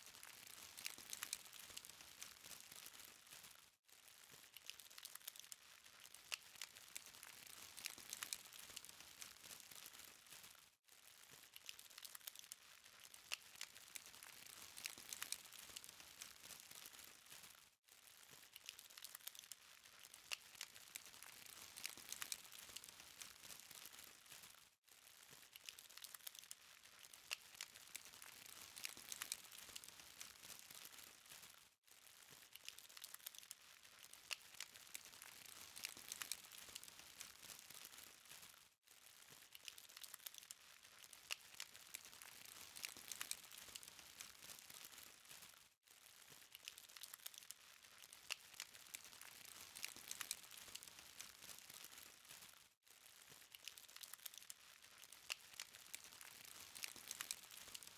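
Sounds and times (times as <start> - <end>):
burning charcoal crackling: 0.2 - 52.4, 53.1 - 57.9.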